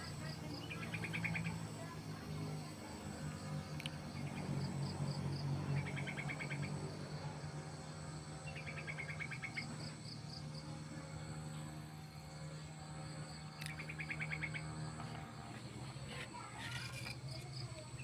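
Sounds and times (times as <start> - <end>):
insects chirping: 0.0 - 18.0
steady low hum: 0.0 - 18.0.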